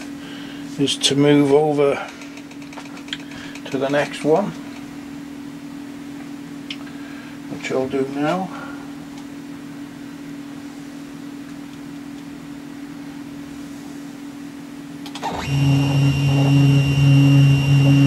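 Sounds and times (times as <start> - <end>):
low electrical hum: 0.0 - 18.0
electric motor humming and whining: 15.1 - 18.0.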